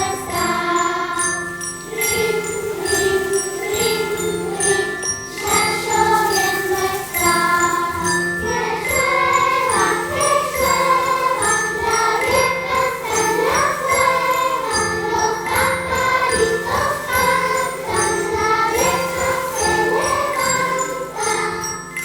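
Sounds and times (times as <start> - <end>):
children's choir singing: 0.0 - 22.0
tinkling bell-like accompaniment: 0.0 - 22.0.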